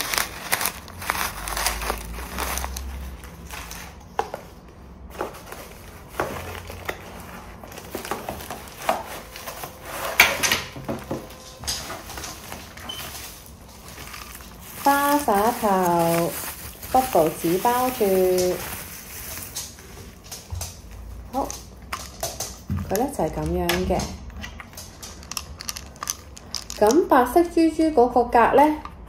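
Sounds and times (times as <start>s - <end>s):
plastic packaging crinkling: 0.0s - 4.2s, 5.1s - 23.7s, 24.3s - 27.2s.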